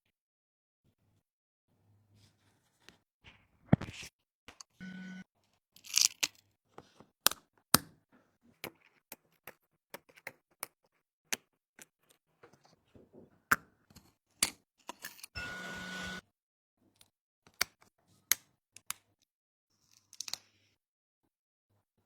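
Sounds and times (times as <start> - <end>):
short steady buzz: 15.4 - 16.2.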